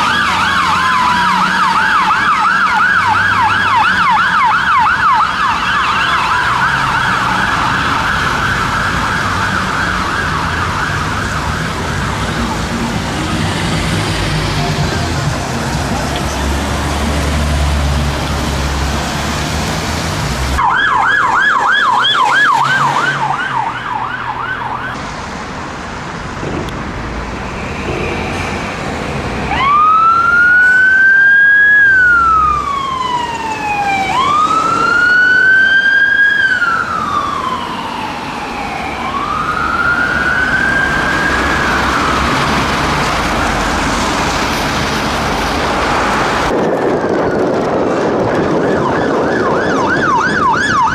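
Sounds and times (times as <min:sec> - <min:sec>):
wailing siren: 0:00.0 - 0:19.3, 0:20.5 - 0:25.0, 0:29.5 - 0:45.4, 0:46.4 - 0:50.9
vehicle engine rumbling: 0:06.2 - 0:30.1, 0:36.6 - 0:50.9.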